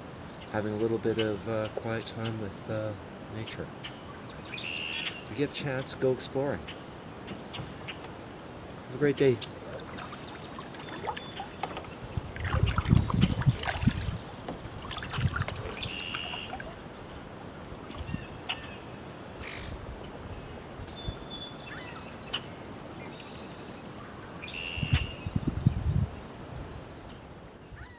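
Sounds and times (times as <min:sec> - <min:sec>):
faint steady hiss: 0:00.0 - 0:27.9
birds chirping and trilling: 0:00.2 - 0:26.2, 0:27.1 - 0:27.9
low muffled thumps: 0:11.8 - 0:15.9.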